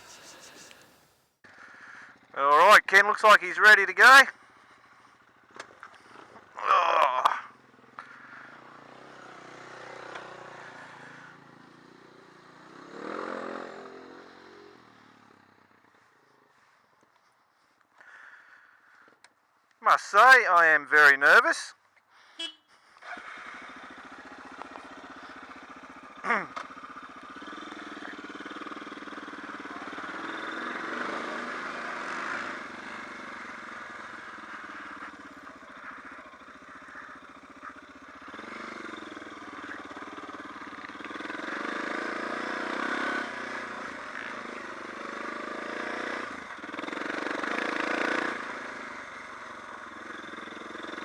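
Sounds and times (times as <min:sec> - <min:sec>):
motorcycle engine running: 0:00.0 - 0:02.4, 0:23.0 - 0:51.0.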